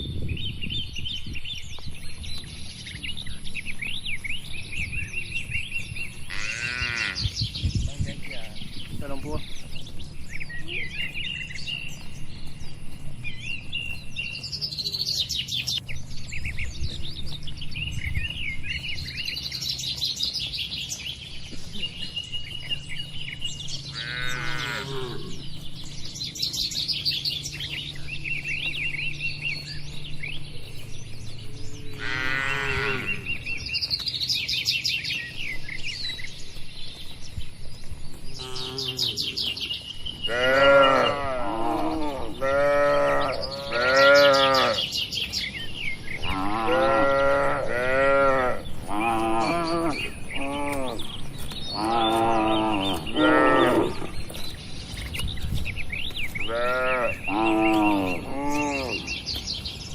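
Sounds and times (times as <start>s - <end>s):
small birds chirping: 0.0s - 59.9s
cattle mooing: 6.3s - 7.2s, 23.9s - 25.4s, 31.9s - 33.3s, 38.4s - 39.3s, 40.2s - 44.9s, 46.2s - 51.1s, 51.7s - 54.2s, 56.4s - 59.1s.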